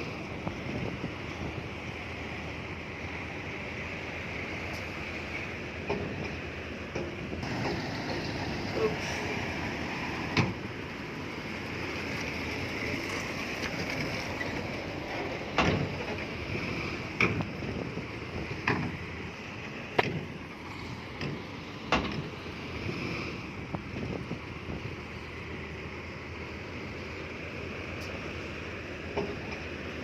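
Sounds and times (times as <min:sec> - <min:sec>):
earthmoving machinery running: 0:00.0 - 0:10.8.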